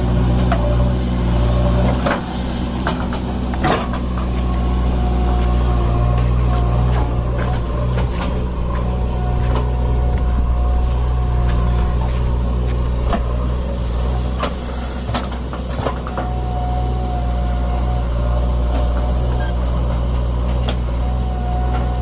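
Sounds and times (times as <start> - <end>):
diesel engine running: 0.0 - 22.0
high whine: 2.4 - 15.0.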